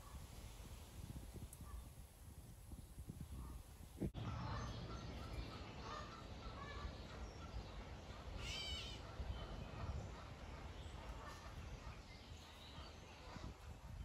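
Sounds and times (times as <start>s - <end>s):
wind rumble on microphone: 0.0s - 6.0s, 6.6s - 14.0s.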